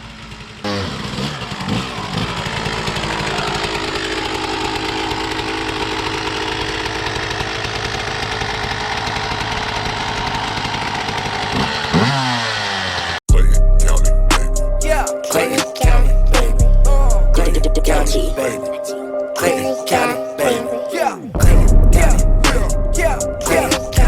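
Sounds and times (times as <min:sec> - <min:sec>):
dirt bike engine revving: 0:00.0 - 0:13.2, 0:21.4 - 0:24.0.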